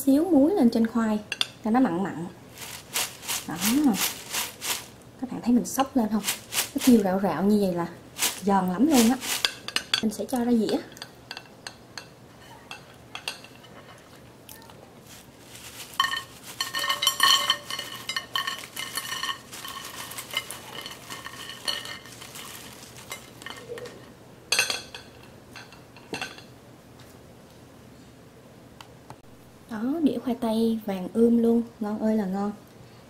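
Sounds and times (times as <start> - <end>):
fries clattering onto plate: 2.6 - 5.0, 5.8 - 7.2, 8.2 - 12.1, 15.0 - 26.5.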